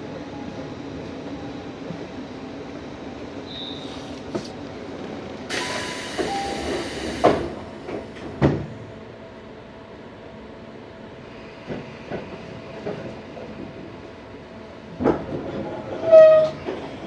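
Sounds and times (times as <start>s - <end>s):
air hiss: 5.5s - 7.8s.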